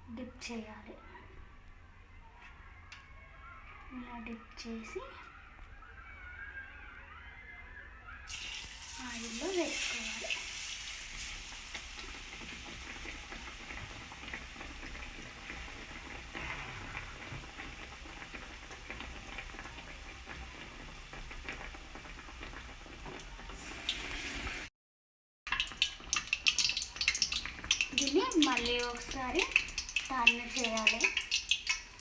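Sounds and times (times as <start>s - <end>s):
bread deep-frying in hot oil: 8.3s - 24.7s, 25.5s - 32.0s.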